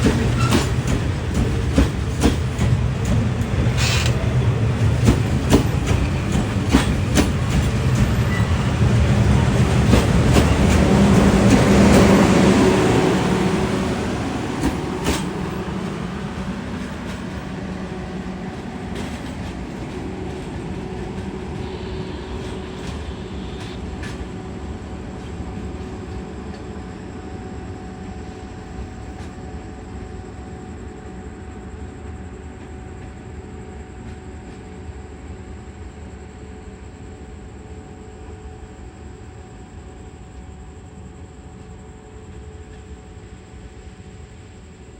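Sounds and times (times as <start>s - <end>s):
train wheels clicking: 0.0s - 26.7s
train rumbling past: 0.0s - 44.9s.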